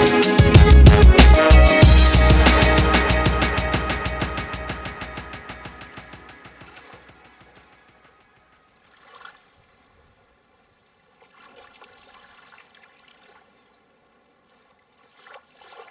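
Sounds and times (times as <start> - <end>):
water trickling and splashing: 10.8 - 15.9.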